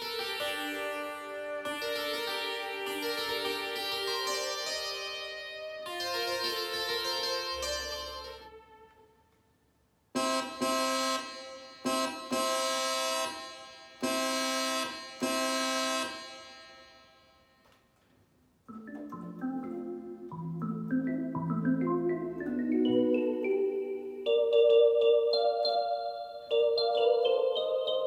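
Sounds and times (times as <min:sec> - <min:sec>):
bright keyboard chords: 0:00.0 - 0:09.0, 0:18.7 - 0:28.0
synthesizer notes: 0:18.7 - 0:28.0.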